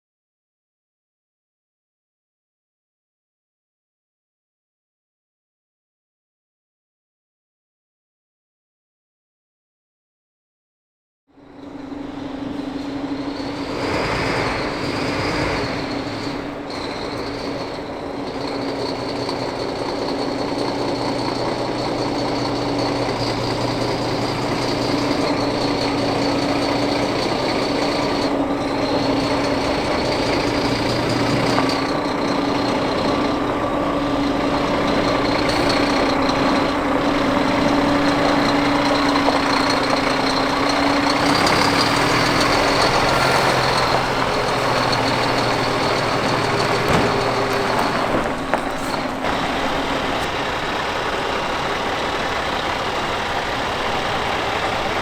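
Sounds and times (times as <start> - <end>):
truck diesel engine running: 11.4 - 55.0.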